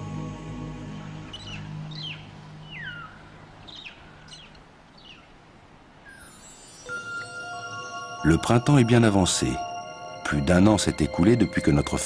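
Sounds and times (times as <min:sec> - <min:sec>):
soft background music: 0:00.0 - 0:03.1, 0:06.2 - 0:12.0.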